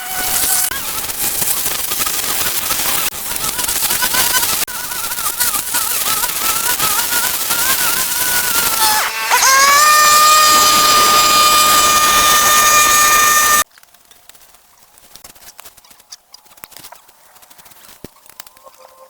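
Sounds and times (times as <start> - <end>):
wavering machine whine: 0.0 - 13.6.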